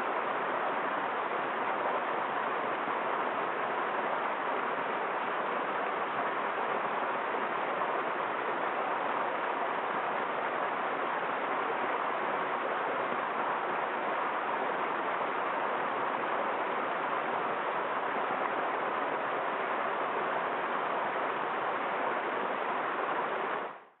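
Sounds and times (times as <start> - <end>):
waterfall rushing: 0.0 - 23.8.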